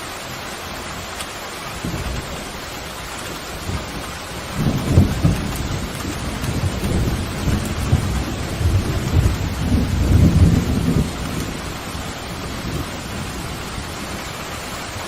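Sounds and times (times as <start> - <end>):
heavy rain hiss: 0.0 - 15.0
rolling thunder: 3.4 - 14.2.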